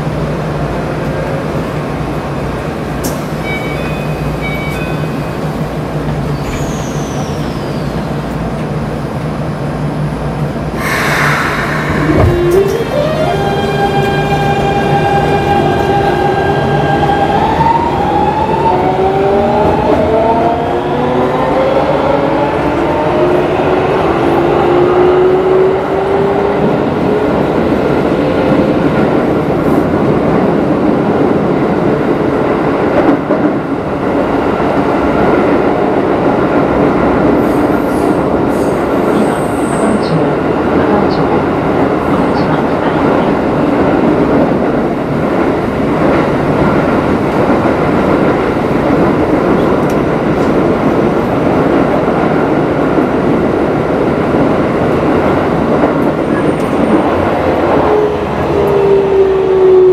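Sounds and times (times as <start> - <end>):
train rumbling in tunnel: 0.0 - 59.9
faint wheel squeal: 6.4 - 8.0.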